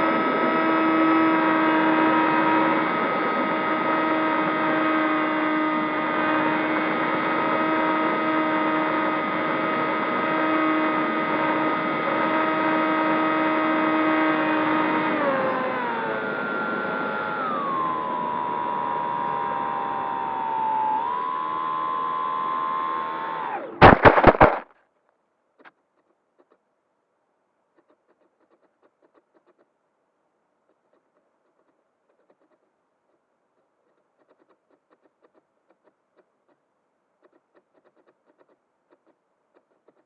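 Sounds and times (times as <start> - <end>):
electric motors and propellers whining: 0.0 - 24.6.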